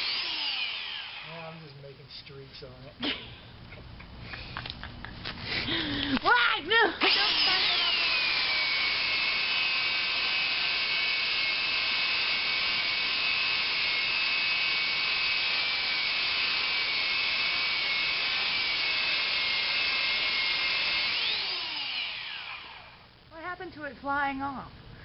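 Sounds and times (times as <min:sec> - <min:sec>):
power tool motor whine: 0:00.0 - 0:01.6, 0:07.0 - 0:23.1.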